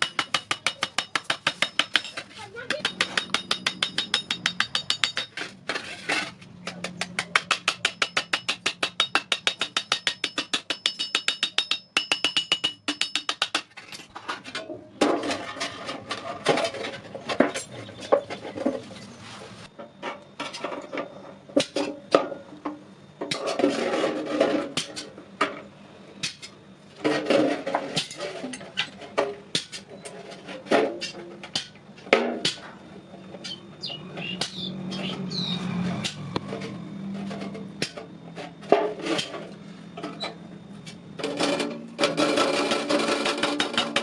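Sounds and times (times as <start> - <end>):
hammer striking iron: 0.0 - 5.5, 6.7 - 13.7, 34.2 - 35.1.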